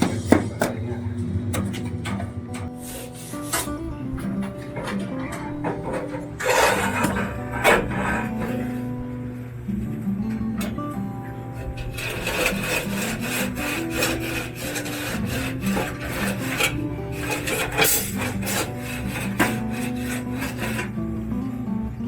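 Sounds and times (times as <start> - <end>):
quiet guitar music: 0.0 - 22.0
plastering tool scraping on wall: 1.6 - 9.0, 11.5 - 21.0.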